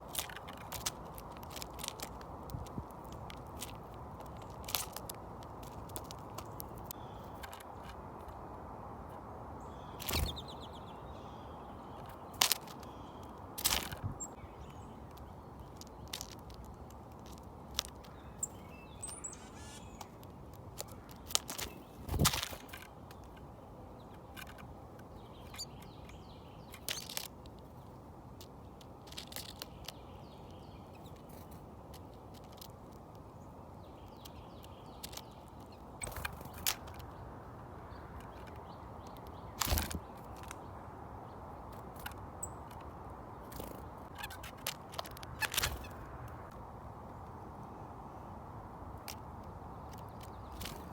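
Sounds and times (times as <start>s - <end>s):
birds chirping and calling: 5.6s - 8.2s, 9.5s - 17.4s, 18.0s - 27.2s, 33.4s - 46.5s.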